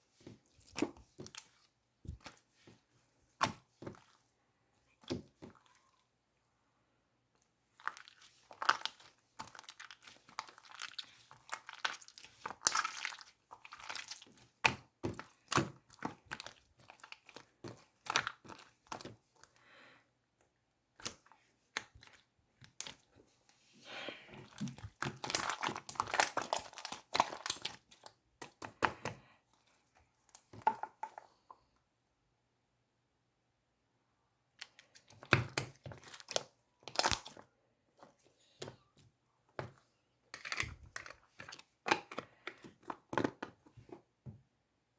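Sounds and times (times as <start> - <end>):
slime crackling and popping: 24.6 - 28.1, 35.3 - 37.4.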